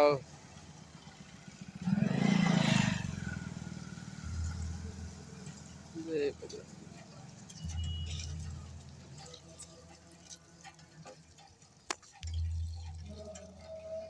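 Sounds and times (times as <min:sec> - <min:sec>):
low rumbles: 0:00.0 - 0:09.6
water running and dripping: 0:02.4 - 0:14.0.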